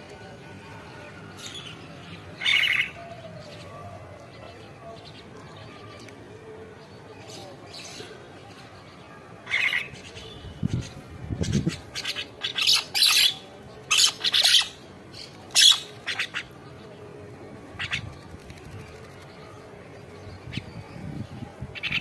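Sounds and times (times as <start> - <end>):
birds squawking: 2.4 - 3.0, 9.5 - 10.2, 11.5 - 14.8, 15.5 - 16.6, 17.8 - 18.2, 21.8 - 22.0.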